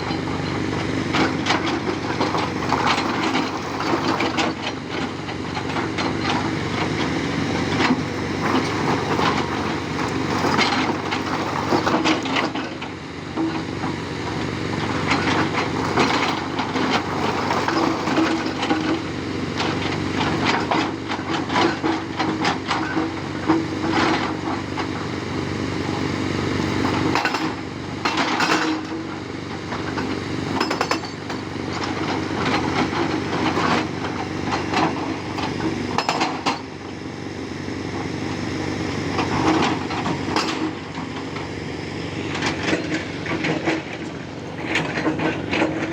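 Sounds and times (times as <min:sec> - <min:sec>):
hydraulic rock breaker hammering: 0:00.0 - 0:37.0, 0:37.8 - 0:45.9
excavator diesel engine running: 0:00.0 - 0:45.9.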